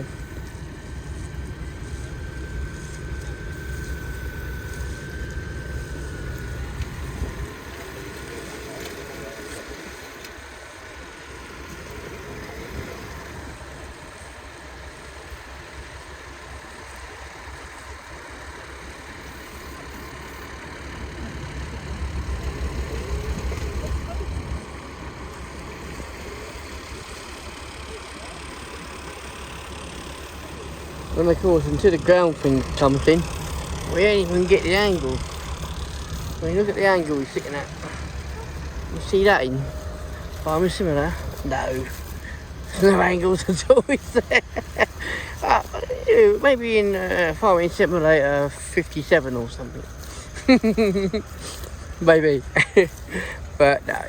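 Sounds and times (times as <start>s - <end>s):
thin steady whine: 0.0s - 54.0s
tractor engine running: 0.0s - 54.0s.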